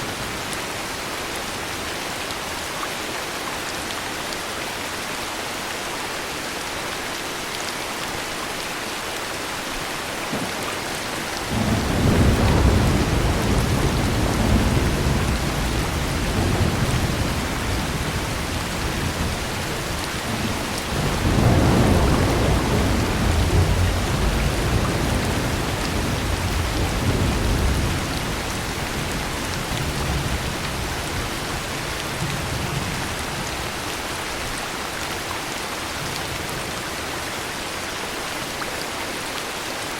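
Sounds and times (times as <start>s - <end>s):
heavy rain: 0.0s - 39.9s
thunder rolling: 10.3s - 30.5s.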